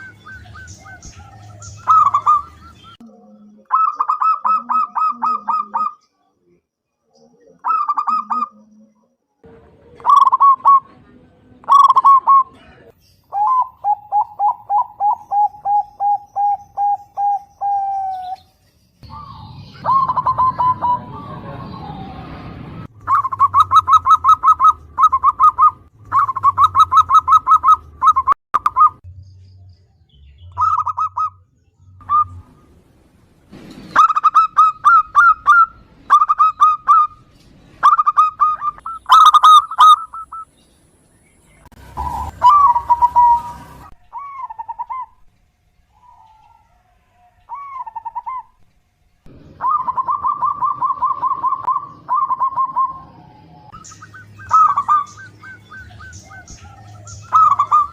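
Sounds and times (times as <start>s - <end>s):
dove cooing: 0.0s - 6.0s, 7.4s - 8.9s, 9.9s - 11.0s, 11.6s - 18.4s, 19.0s - 22.2s, 23.0s - 29.0s, 37.8s - 40.4s, 41.7s - 45.3s, 45.9s - 48.6s, 49.3s - 57.9s.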